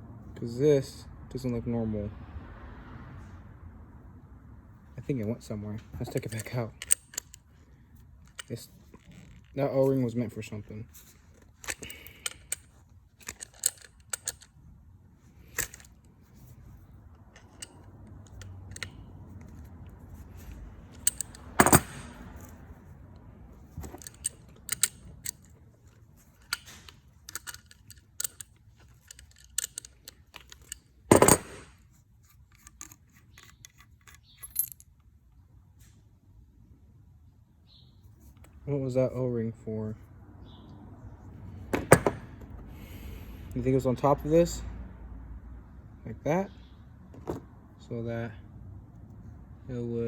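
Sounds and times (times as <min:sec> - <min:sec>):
light clicks and taps of parts: 0:05.8 - 0:14.6, 0:15.4 - 0:35.1.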